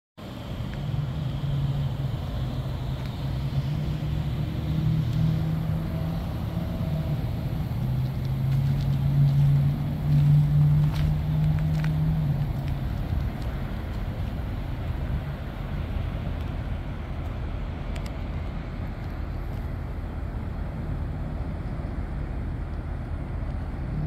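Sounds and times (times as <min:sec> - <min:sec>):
car engine idling: 0:00.2 - 0:24.0.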